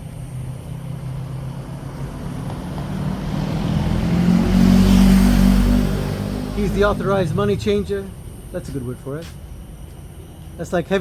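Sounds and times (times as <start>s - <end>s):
tyre noise on street: 0.0s - 11.0s
vehicle engine passing by: 0.2s - 8.7s.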